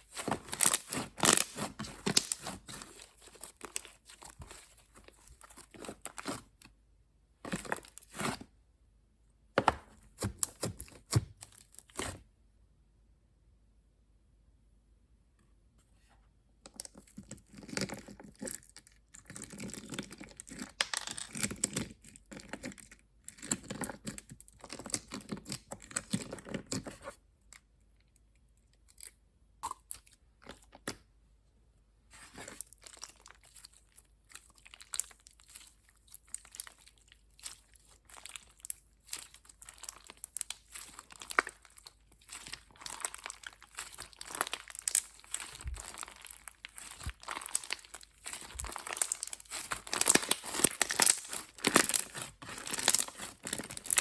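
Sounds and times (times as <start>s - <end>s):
slime crackling and clicking: 0.2s - 4.7s, 34.3s - 54.0s.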